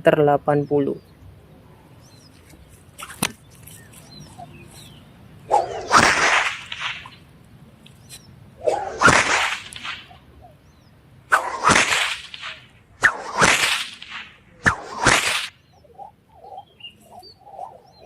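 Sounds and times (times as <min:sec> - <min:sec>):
whip cracking: 0:05.5 - 0:07.2, 0:08.6 - 0:10.2, 0:11.3 - 0:15.6
whip swishing: 0:05.5 - 0:07.2, 0:08.6 - 0:10.2, 0:11.3 - 0:15.6.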